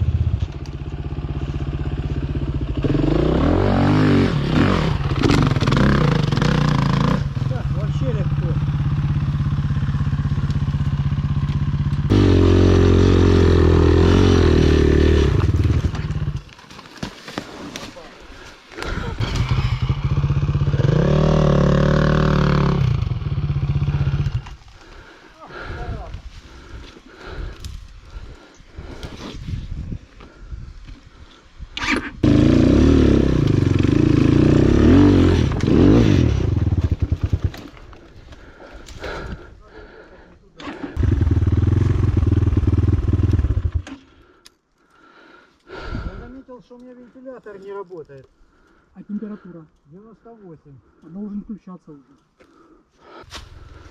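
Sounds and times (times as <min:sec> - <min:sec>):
motorcycle engine revving: 0:00.0 - 0:16.5, 0:18.8 - 0:25.0, 0:31.8 - 0:37.8, 0:40.6 - 0:44.2.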